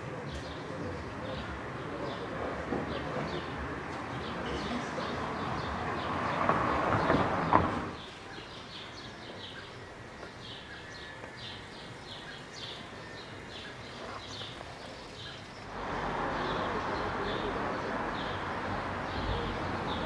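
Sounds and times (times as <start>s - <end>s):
birds chirping: 0.0s - 20.0s
steady background noise: 0.0s - 20.0s
loud rush of noise: 15.6s - 20.0s.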